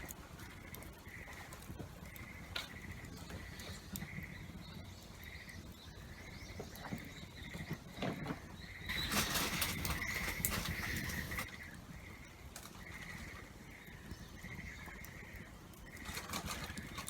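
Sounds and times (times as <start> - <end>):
rain pattering: 0.0 - 7.8, 8.8 - 17.0
campfire crackling: 0.0 - 17.0
animal rattling calls: 8.8 - 11.7, 14.3 - 17.0.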